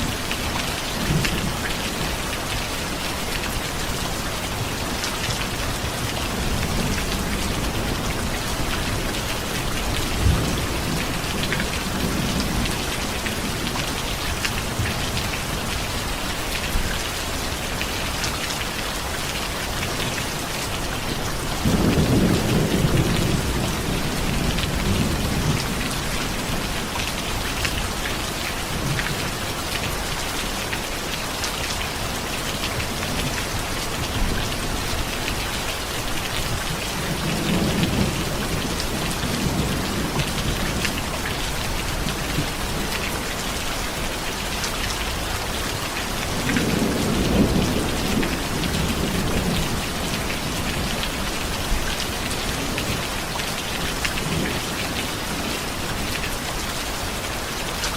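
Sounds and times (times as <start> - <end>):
steady rain falling: 0.0 - 57.9
low thunder rumbling: 21.5 - 26.9.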